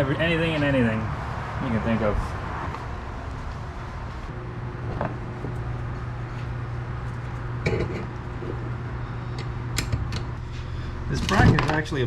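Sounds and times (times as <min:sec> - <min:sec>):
low hum: 0:02.2 - 0:11.2.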